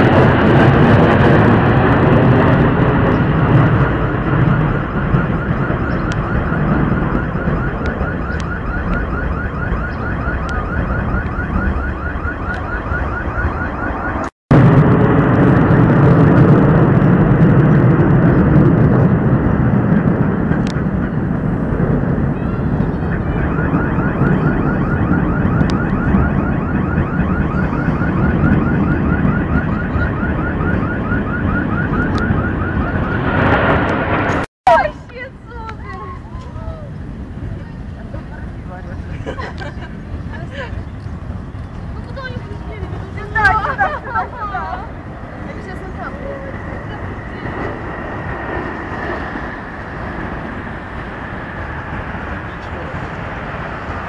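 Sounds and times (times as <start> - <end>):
low outdoor rumble: 0.0 - 54.0
repeating electronic tone: 3.0 - 14.3.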